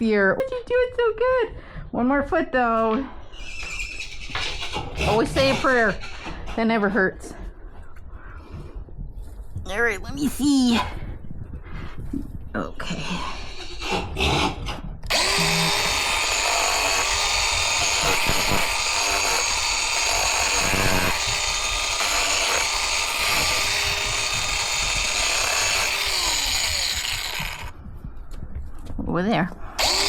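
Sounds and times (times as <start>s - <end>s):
angle grinder grinding hoof: 3.4s - 6.5s, 13.5s - 27.8s, 29.8s - 30.0s.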